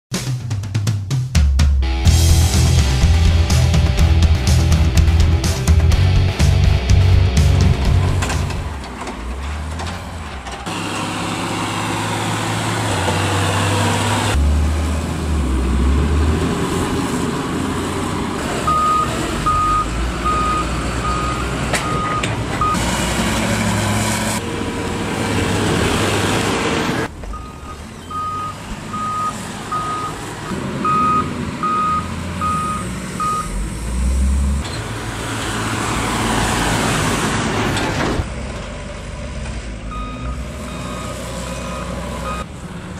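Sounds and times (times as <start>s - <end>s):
heavy farm machinery engines: 2.1s - 42.9s
reversing alarm beeping: 18.7s - 22.8s, 27.3s - 30.2s, 30.8s - 33.6s, 39.9s - 42.5s.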